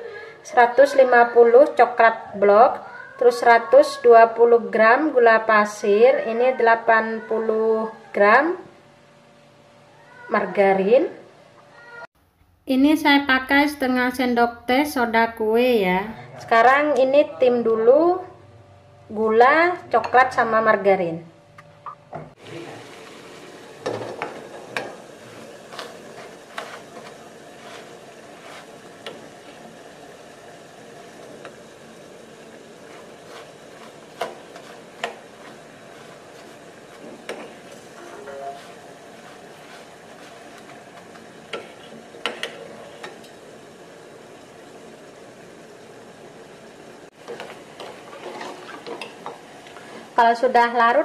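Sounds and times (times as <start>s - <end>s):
steady background hiss: 21.3s - 51.0s.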